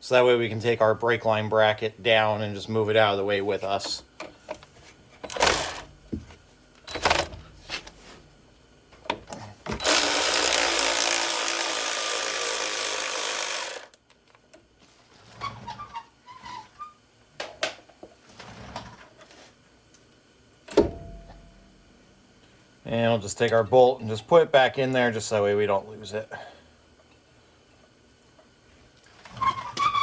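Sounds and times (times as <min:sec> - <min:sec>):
power tool spinning bolt: 0:09.8 - 0:14.0.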